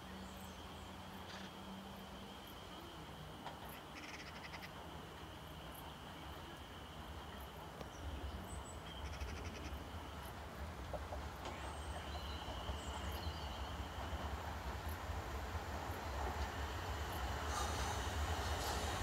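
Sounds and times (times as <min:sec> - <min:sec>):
distant train rumble: 0:00.0 - 0:19.0
birds chirping: 0:11.4 - 0:14.4.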